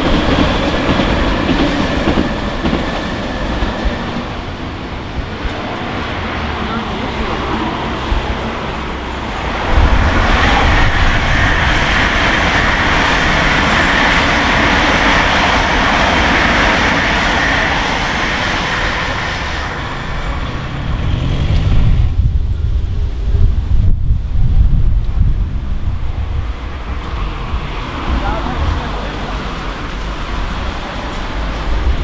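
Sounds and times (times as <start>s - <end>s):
train passing at speed: 0.0s - 32.0s
low rumble: 8.1s - 13.2s, 19.4s - 29.0s.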